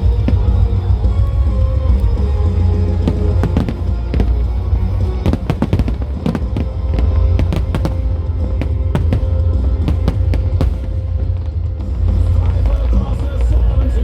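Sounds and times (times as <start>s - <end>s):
fireworks banging: 0.0s - 13.0s
low rumble: 0.0s - 14.0s
music: 0.0s - 14.0s.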